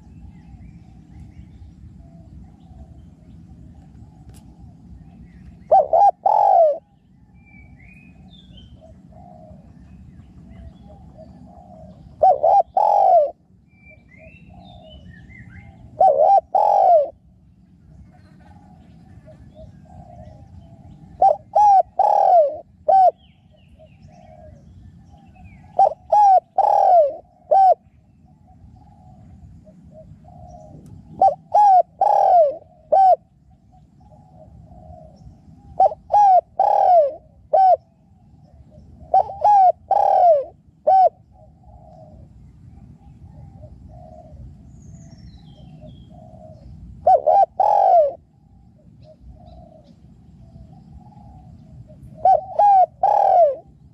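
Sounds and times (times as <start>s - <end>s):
dove cooing: 0.0s - 53.9s
fainter dove cooing: 5.7s - 6.9s, 10.4s - 13.4s, 15.6s - 17.2s, 18.0s - 23.2s, 25.7s - 27.8s, 28.9s - 33.2s, 34.1s - 37.8s, 38.5s - 42.3s, 45.7s - 50.0s, 50.6s - 53.7s.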